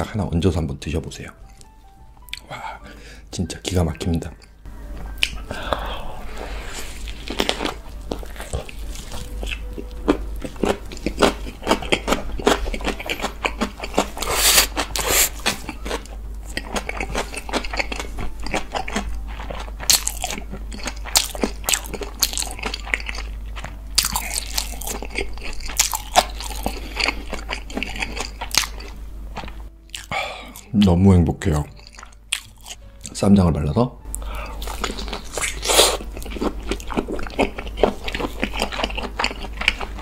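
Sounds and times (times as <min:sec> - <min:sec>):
chewing crunches: 0:07.0 - 0:30.7, 0:31.7 - 0:33.2, 0:34.1 - 0:40.0.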